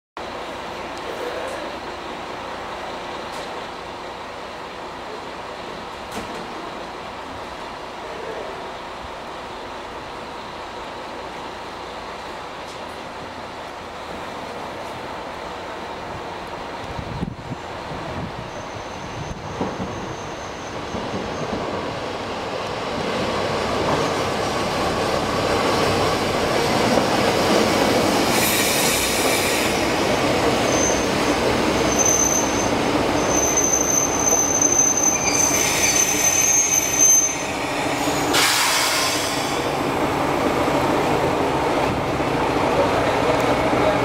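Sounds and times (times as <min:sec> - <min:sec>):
train running on rails: 0:00.2 - 0:44.0
high-pitched wheel squeal: 0:18.5 - 0:21.5, 0:30.6 - 0:31.2, 0:31.8 - 0:37.7
short hissing bursts: 0:38.2 - 0:39.6.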